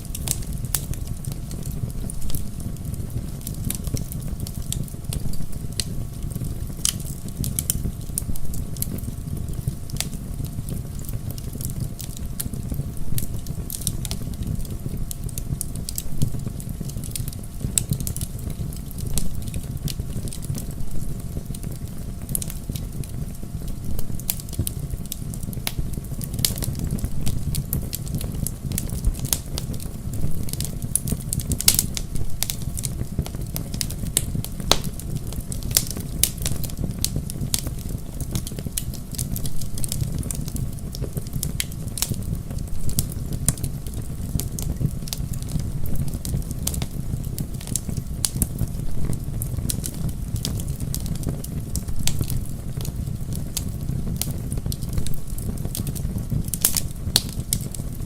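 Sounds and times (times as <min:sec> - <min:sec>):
crackles and pops of burning logs: 0:00.0 - 0:58.0
low rumble of flames: 0:00.0 - 0:58.0.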